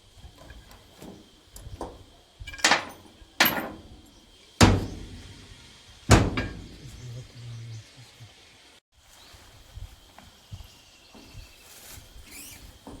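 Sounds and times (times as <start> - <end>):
metal tools clinking: 0.4 - 6.9
loud ringing metal knocks: 2.5 - 4.0, 4.6 - 7.0.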